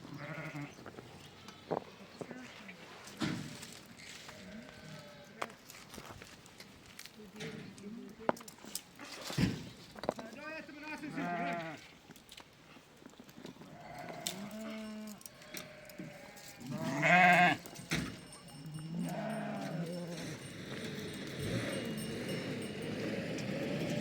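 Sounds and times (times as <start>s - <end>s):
sheep bleating: 0.1s - 0.9s, 4.3s - 5.5s, 11.0s - 11.8s, 13.7s - 17.7s, 18.8s - 20.3s.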